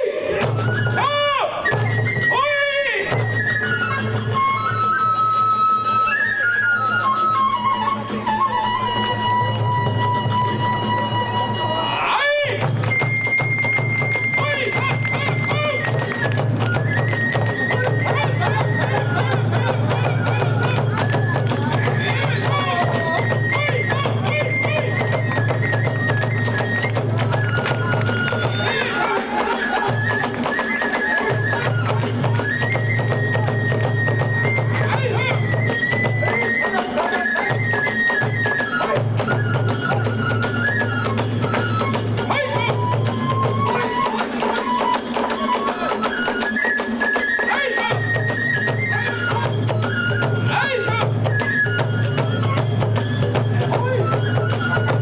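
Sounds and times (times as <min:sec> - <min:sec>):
bamboo flute melody: 0:00.0 - 0:55.0.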